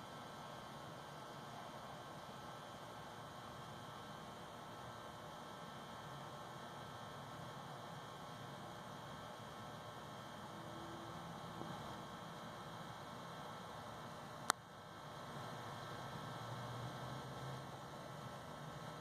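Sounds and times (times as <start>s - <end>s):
faint hum and hiss: 0.0s - 19.0s.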